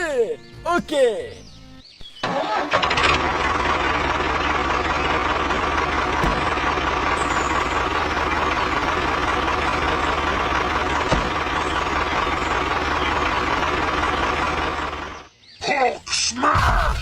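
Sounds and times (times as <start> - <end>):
tractor engine running: 2.2 - 15.3.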